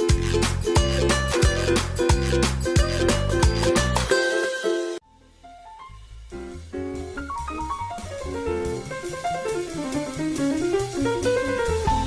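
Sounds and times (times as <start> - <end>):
plucked string notes: 0.0 - 9.0
music with steady beat: 0.0 - 12.0.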